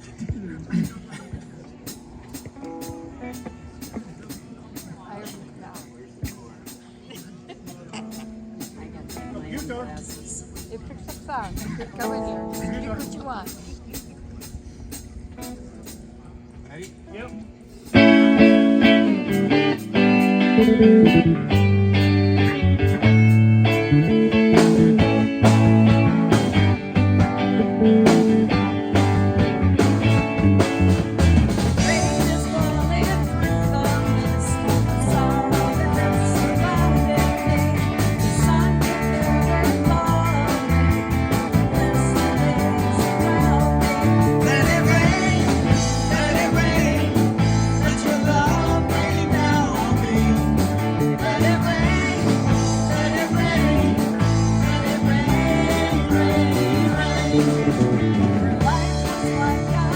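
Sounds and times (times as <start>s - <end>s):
guitar-led rock music: 2.4s - 4.4s, 12.0s - 13.5s, 17.9s - 59.9s.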